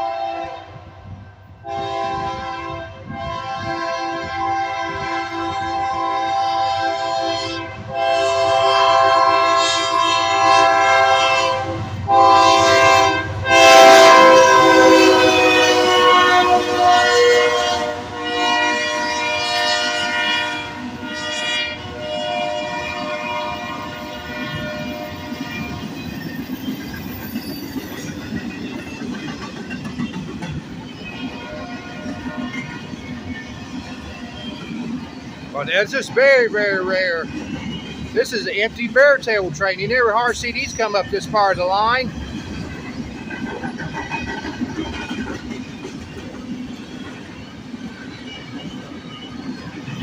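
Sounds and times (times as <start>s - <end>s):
locomotive air horn blasts: 0.0s - 0.8s, 1.6s - 25.9s, 31.3s - 33.0s
train rumble and clickety-clack: 0.0s - 50.0s.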